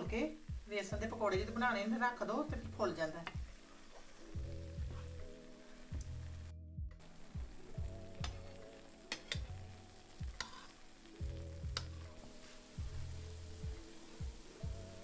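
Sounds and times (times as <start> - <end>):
background music with beat: 0.1 - 1.6, 2.5 - 15.0
fritters sizzling in hot oil: 7.0 - 15.0
spoon clicking against pan: 9.1 - 9.5, 11.7 - 12.0.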